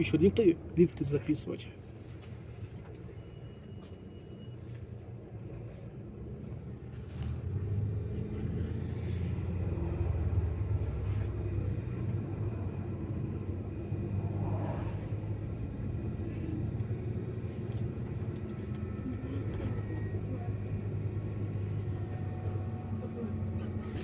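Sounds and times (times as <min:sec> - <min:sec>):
bus engine and road rumble: 0:00.0 - 0:24.0.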